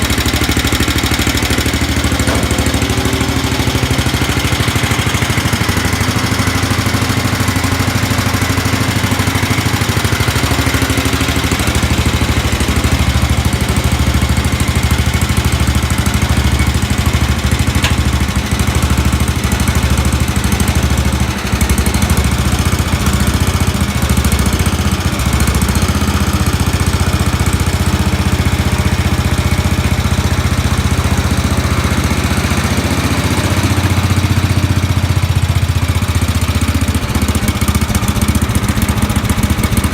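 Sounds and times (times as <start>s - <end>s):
garden tractor engine running: 0.0s - 39.9s.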